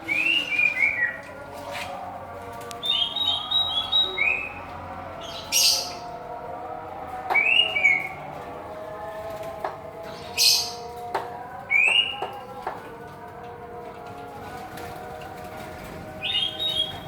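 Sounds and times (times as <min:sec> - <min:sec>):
birds chirping: 0:00.0 - 0:02.0, 0:02.8 - 0:06.3, 0:07.2 - 0:08.3, 0:09.8 - 0:12.6, 0:16.0 - 0:17.0.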